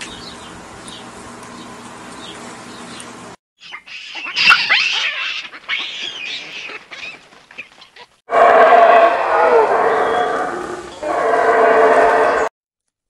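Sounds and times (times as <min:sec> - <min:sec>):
high-pitched animal cries: 0:03.6 - 0:07.2.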